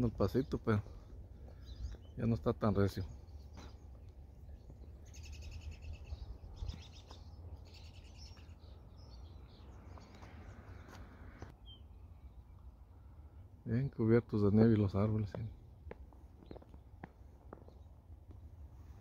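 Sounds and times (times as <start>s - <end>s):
songbird singing high notes: 1.6s - 10.9s.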